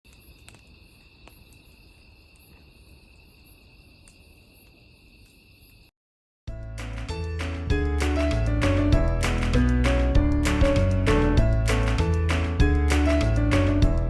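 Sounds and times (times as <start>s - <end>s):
crickets chirping: 0.1s - 5.9s
music: 6.5s - 14.0s.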